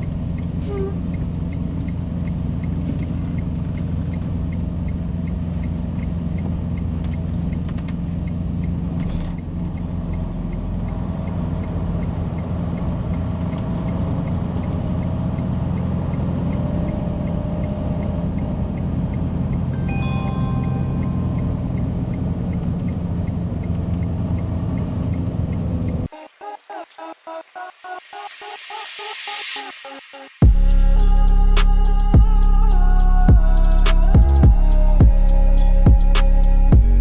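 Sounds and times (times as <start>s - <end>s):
diesel truck engine running: 0.0s - 26.1s, 30.4s - 37.0s
turn signal ticking: 0.0s - 26.1s, 30.4s - 37.0s
short electronic tones: 19.8s - 22.0s.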